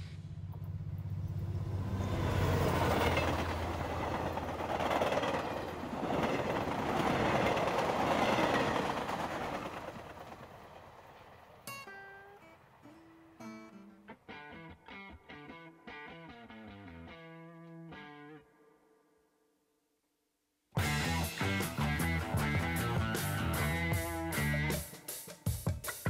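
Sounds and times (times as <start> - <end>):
train rumbling past: 0.0 - 13.3.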